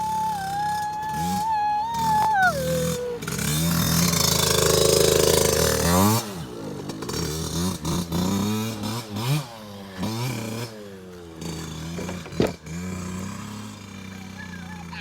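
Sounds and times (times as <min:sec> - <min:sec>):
dirt bike engine revving: 0:02.9 - 0:10.7.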